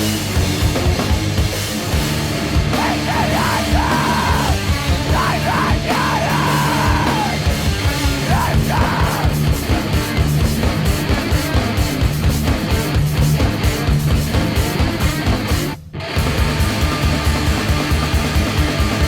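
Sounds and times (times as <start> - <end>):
heavy rock band playing: 0.0 - 19.0
person screaming vocals: 2.8 - 7.6, 8.2 - 9.4.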